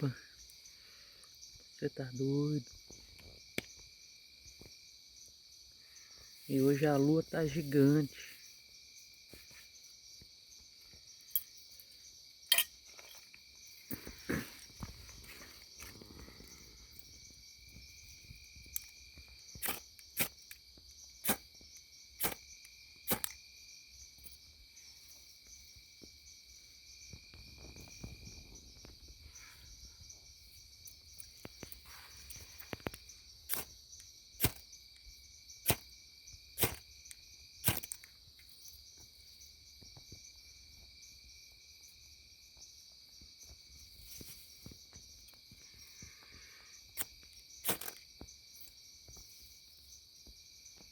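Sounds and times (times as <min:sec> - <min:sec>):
insects chirping: 0:00.0 - 0:50.9
striker scraping a fire steel: 0:12.5 - 0:13.2, 0:19.6 - 0:20.5, 0:21.2 - 0:21.4, 0:22.2 - 0:22.4, 0:23.1 - 0:23.4, 0:34.4 - 0:34.6, 0:36.6 - 0:36.8, 0:37.6 - 0:38.0, 0:47.7 - 0:48.0.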